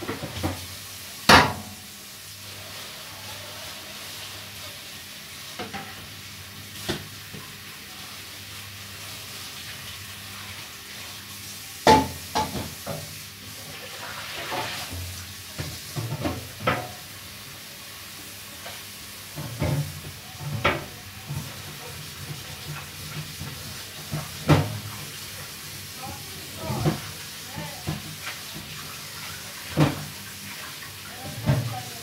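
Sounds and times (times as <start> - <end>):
food sizzling in a pan: 0.0 - 32.0.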